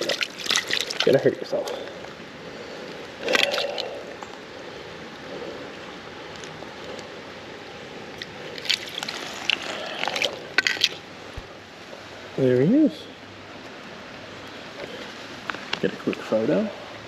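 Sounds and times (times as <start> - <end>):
water splash: 0.0 - 1.8, 3.2 - 4.1, 8.6 - 11.0
creek water running: 0.0 - 17.0.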